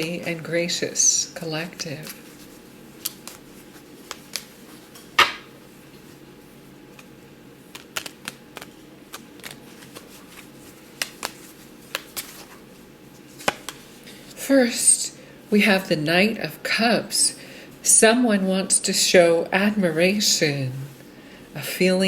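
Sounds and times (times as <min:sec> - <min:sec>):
cards snapping and tapping: 0:04.0 - 0:04.5, 0:07.7 - 0:10.4, 0:11.0 - 0:12.4, 0:13.4 - 0:13.8.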